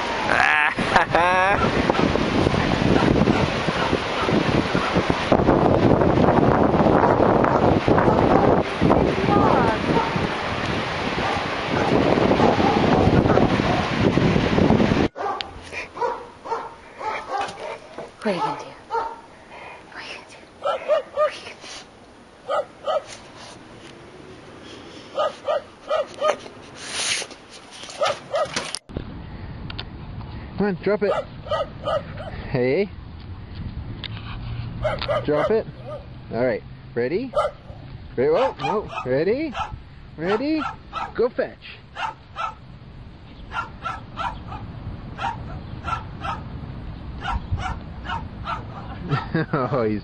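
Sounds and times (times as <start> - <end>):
dog barking: 2.9 - 5.0, 7.5 - 8.6, 9.4 - 10.2, 11.2 - 13.9, 15.2 - 19.3, 20.6 - 21.4, 22.4 - 23.2, 25.2 - 26.4, 28.0 - 28.6, 31.1 - 32.4, 34.8 - 36.1, 37.3 - 41.2, 41.9 - 42.6, 43.5 - 46.5, 47.2 - 49.4
brief hissing: 21.5 - 21.9, 26.7 - 27.4.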